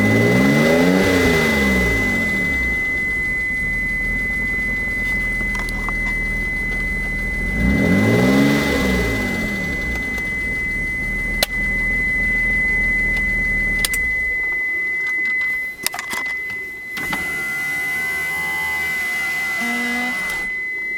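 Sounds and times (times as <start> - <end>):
car engine idling with tick: 0.0 - 14.6
car engine revving: 0.0 - 14.6.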